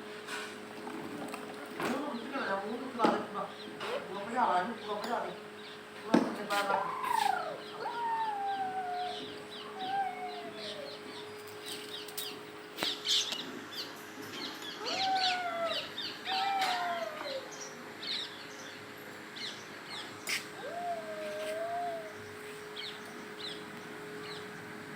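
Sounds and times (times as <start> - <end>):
faint steady hum: 0.0 - 24.9
bird calls falling in pitch: 14.8 - 17.5.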